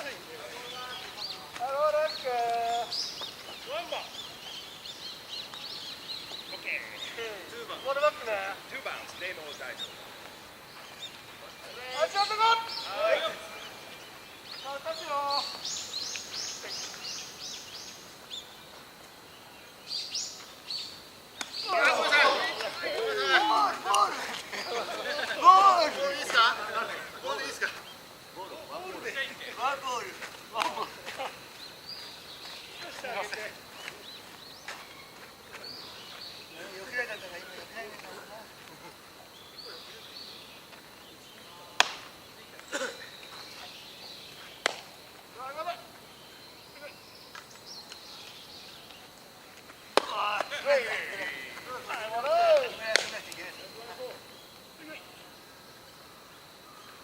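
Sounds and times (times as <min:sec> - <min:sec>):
distant shout: 0:11.6 - 0:13.9, 0:21.6 - 0:27.8, 0:50.0 - 0:54.2
baseball bat crack: 0:21.4 - 0:22.9, 0:41.8 - 0:42.1, 0:44.6 - 0:44.9, 0:49.9 - 0:50.7, 0:52.6 - 0:53.3.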